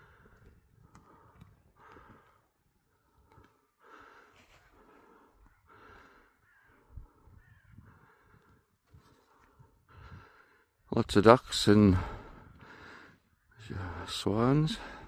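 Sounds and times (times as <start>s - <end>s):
crows cawing: 4.9s - 9.4s.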